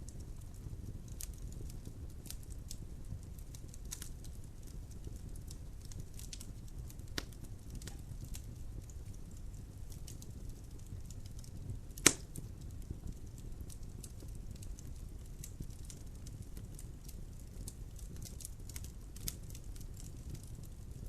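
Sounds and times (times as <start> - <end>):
logs burning in a fireplace: 0.0 - 21.0
loud sharp pop of fire: 7.2 - 8.0, 11.9 - 12.5.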